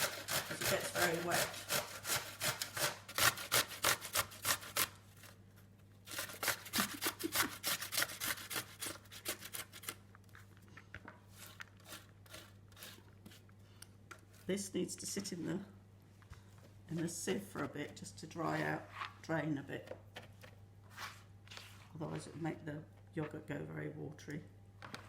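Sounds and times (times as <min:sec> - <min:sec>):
cucumber rasping on hand grater: 0:00.0 - 0:04.9, 0:06.1 - 0:10.0, 0:11.3 - 0:13.4.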